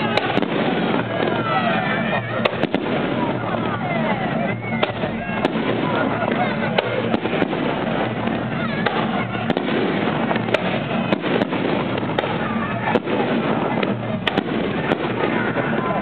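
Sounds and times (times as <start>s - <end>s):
crowd noise: 0.0s - 16.0s
fireworks bangs and crackles: 0.0s - 16.0s.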